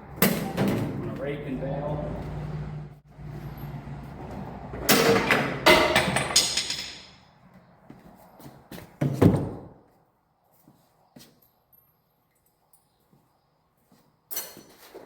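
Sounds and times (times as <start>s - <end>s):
loud metallic clanks: 4.8s - 7.2s.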